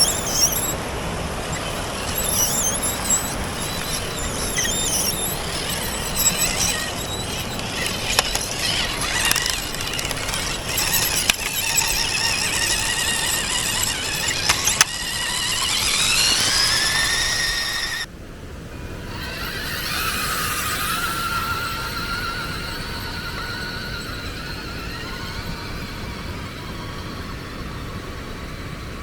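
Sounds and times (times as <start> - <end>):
sharp clicks: 0.0 - 0.8, 1.4 - 18.1
electric motor and gears whining: 0.0 - 18.1, 18.7 - 29.0.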